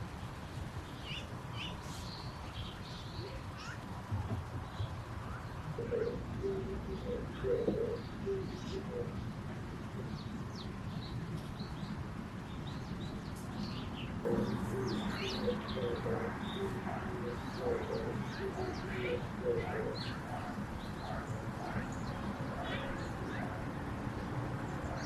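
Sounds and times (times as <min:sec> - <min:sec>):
steady low background noise: 0:00.0 - 0:25.0
birds calling low notes: 0:04.4 - 0:12.0, 0:12.8 - 0:25.0.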